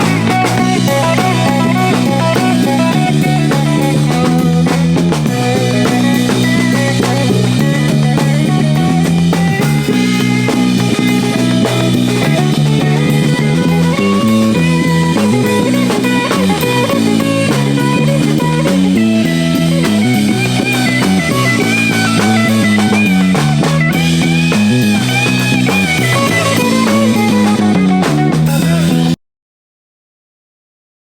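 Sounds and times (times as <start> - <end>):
drum kit: 0.0 - 29.2
electric guitar: 0.0 - 29.2.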